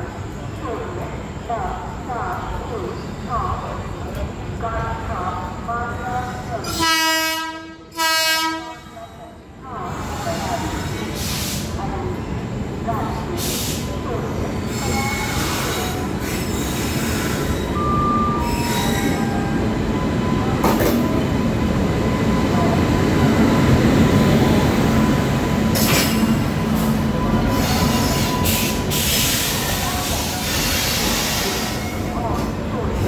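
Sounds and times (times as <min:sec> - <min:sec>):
train wheels rumbling on rails: 0:09.7 - 0:33.0.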